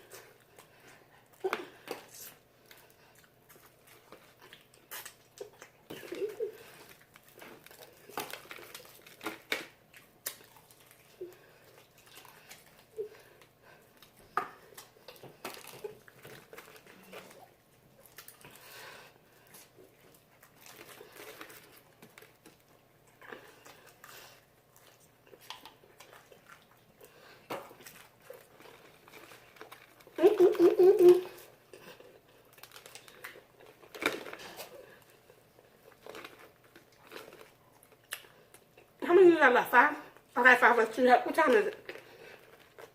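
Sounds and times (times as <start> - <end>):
crunching and chewing: 0.0 - 39.0, 41.7 - 42.9.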